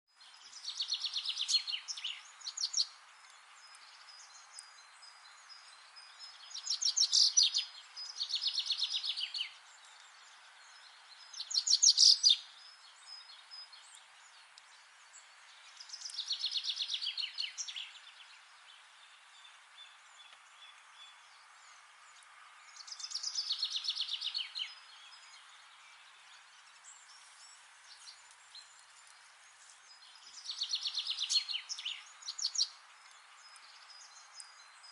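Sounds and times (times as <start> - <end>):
faint background hiss: 0.1 - 34.9
songbird trilling: 0.4 - 3.0, 6.1 - 9.6, 11.3 - 13.2, 22.7 - 25.4, 30.0 - 32.8.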